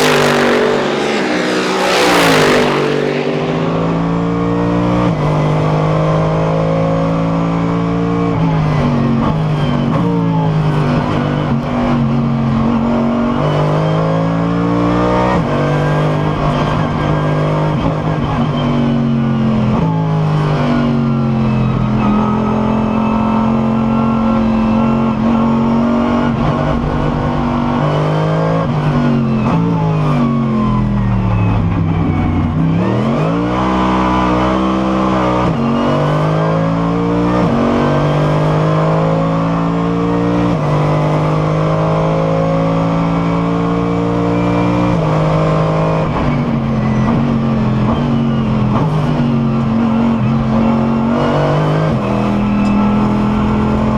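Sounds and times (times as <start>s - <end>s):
racing car engine revving: 0.0s - 18.3s
engine downshifts under braking: 0.0s - 53.9s.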